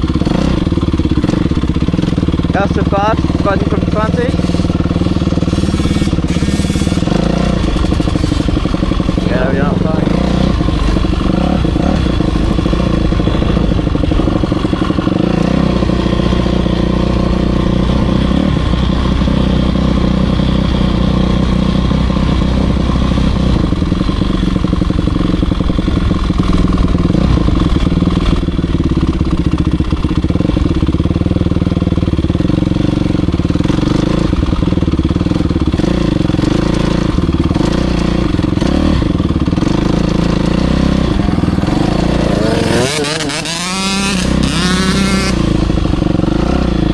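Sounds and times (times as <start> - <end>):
motocross bike engine revving: 0.0 - 46.9.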